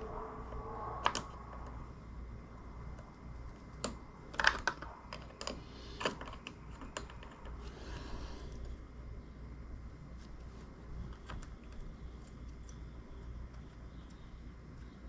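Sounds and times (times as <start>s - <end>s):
small hard parts clicking: 3.0s - 8.7s.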